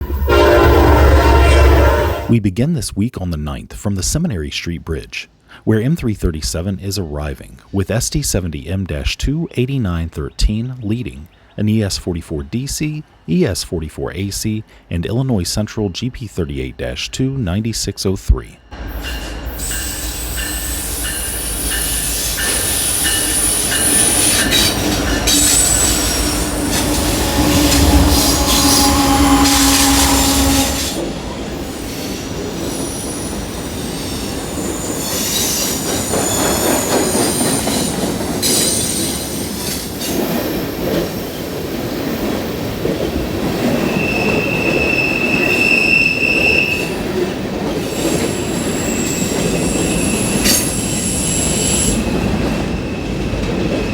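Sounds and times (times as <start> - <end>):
locomotive engines rumbling: 0.0 - 2.4, 6.2 - 53.9
freight cars rolling on rails: 18.8 - 53.9
high-pitched wheel squeal: 18.9 - 37.9, 43.7 - 47.0, 47.9 - 53.2.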